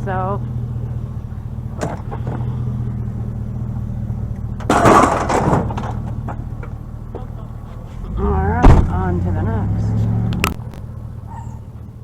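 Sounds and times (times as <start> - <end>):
car engine and road noise: 0.0 - 12.0
loud clattering rattle: 4.5 - 7.3.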